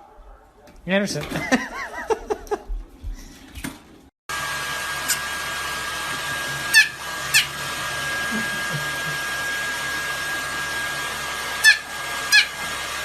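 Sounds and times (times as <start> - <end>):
whirring blowing machine: 4.3 - 13.0.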